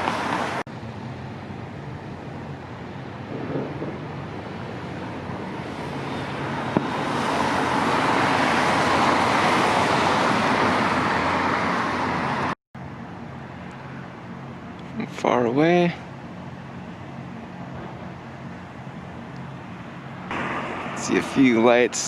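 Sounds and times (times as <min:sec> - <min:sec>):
vehicle passing close by: 0:00.0 - 0:12.6
road traffic: 0:00.0 - 0:22.0.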